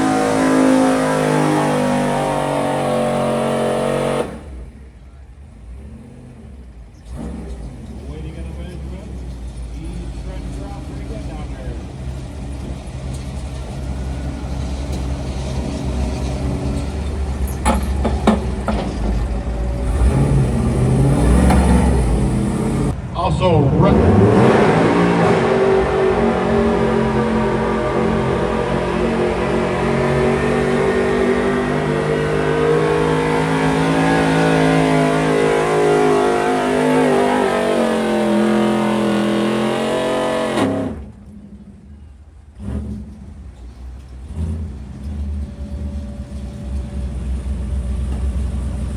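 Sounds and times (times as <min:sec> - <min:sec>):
pickup truck engine idling: 0:03.3 - 0:23.0, 0:41.1 - 0:48.9.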